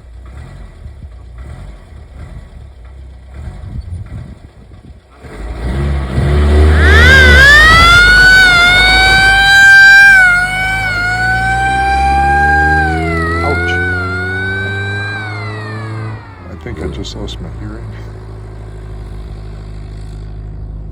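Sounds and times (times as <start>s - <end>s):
off-road vehicle engine running: 0.0s - 20.9s
shrill siren winding up: 6.5s - 16.9s.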